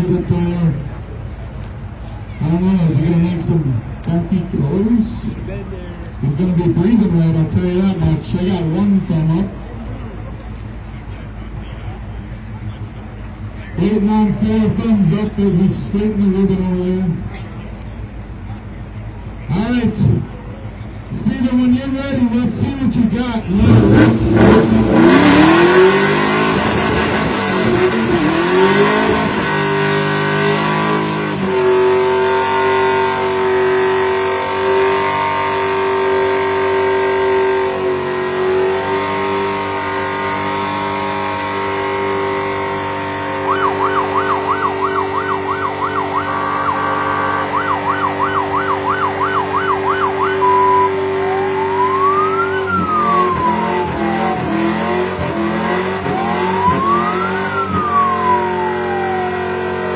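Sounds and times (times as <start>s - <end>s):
rising and falling siren wails: 23.9s - 59.9s
warbling siren yelp: 43.3s - 59.9s.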